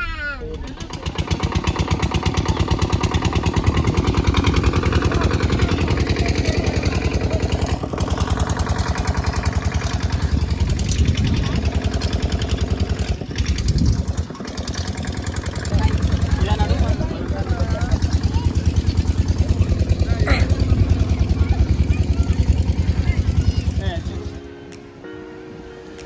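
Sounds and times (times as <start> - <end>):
small vehicle engine running: 0.4 - 24.5.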